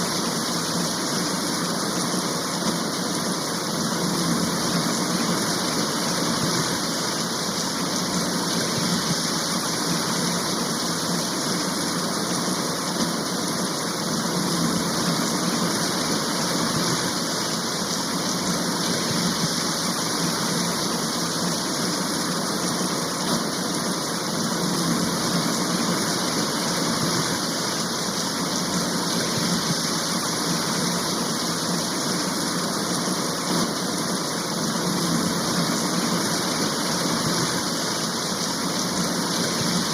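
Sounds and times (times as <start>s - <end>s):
rain shower hiss: 0.0s - 39.9s.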